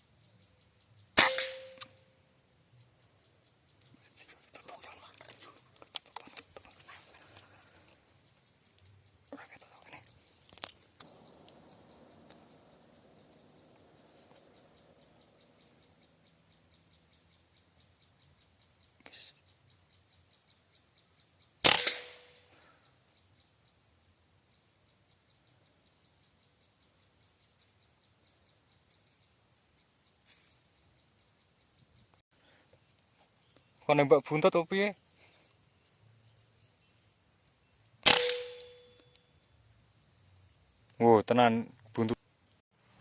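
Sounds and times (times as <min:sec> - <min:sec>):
air rifle shot: 0:01.2 - 0:02.0, 0:21.6 - 0:22.5, 0:38.0 - 0:38.9.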